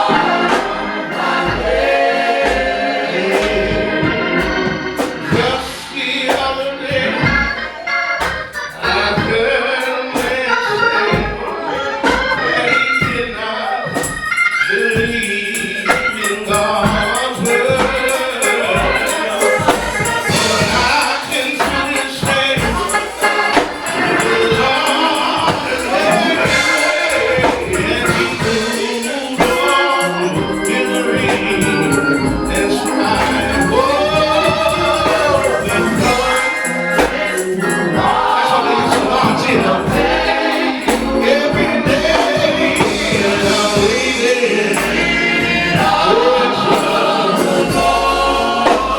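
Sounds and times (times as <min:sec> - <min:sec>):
backing music: 0:00.0 - 0:48.9
gospel choir singing: 0:00.0 - 0:48.9
tambourine: 0:12.1 - 0:48.9.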